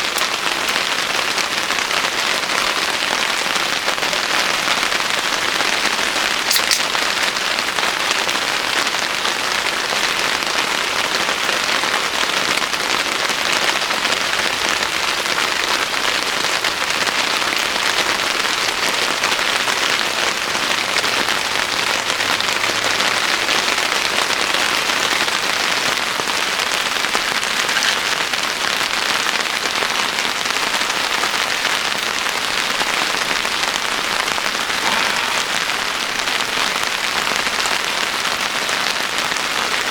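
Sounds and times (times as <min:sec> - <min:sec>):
sharp raindrop ticks: 0:00.0 - 0:02.6, 0:06.4 - 0:07.4
steady rain hiss: 0:00.0 - 0:39.9.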